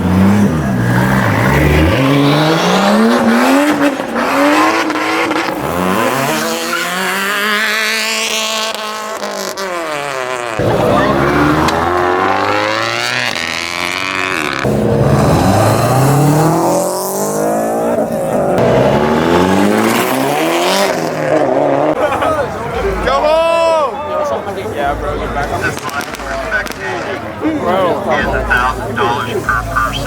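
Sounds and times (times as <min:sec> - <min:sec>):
car engine revving: 0:00.0 - 0:23.2, 0:24.8 - 0:30.0
tyres squealing: 0:05.9 - 0:07.5.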